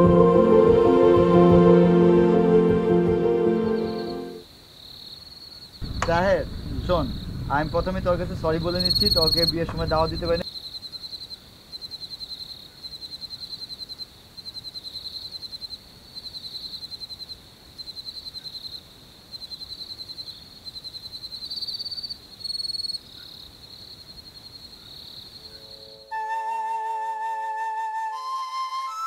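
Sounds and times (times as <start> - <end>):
flute music: 0.0 - 4.4, 25.7 - 29.0
crickets chirping: 3.1 - 26.2
faint hiss: 3.8 - 10.5.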